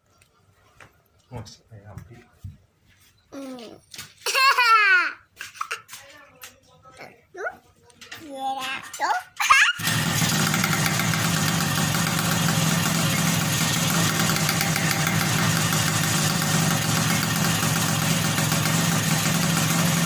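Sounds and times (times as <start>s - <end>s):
motorcycle engine idling: 9.8s - 20.0s.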